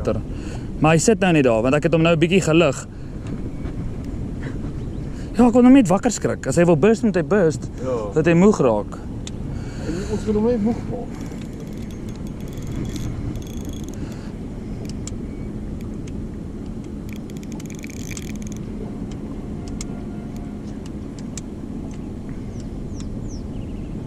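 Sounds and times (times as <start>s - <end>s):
boat engine humming: 0.0s - 24.0s
rapid clicking: 11.2s - 15.2s, 16.8s - 18.7s.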